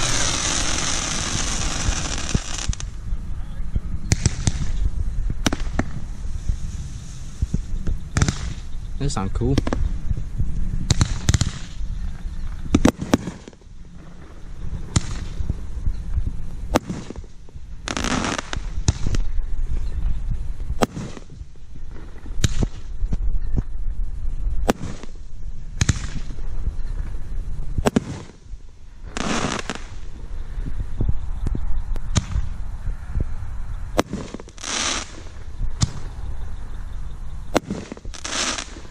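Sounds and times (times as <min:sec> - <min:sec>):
fireworks bangs: 0:00.0 - 0:03.0, 0:04.0 - 0:08.8, 0:10.8 - 0:11.9, 0:12.7 - 0:15.4, 0:16.7 - 0:19.4, 0:20.7 - 0:23.8, 0:24.6 - 0:26.4, 0:27.8 - 0:30.1, 0:33.9 - 0:36.2, 0:37.5 - 0:38.9
noisy firework bursts: 0:00.0 - 0:03.0, 0:04.0 - 0:08.7, 0:10.8 - 0:11.9, 0:12.7 - 0:15.4, 0:16.7 - 0:19.4, 0:20.6 - 0:23.2, 0:24.6 - 0:26.6, 0:27.8 - 0:30.2, 0:33.9 - 0:36.3, 0:37.4 - 0:38.9.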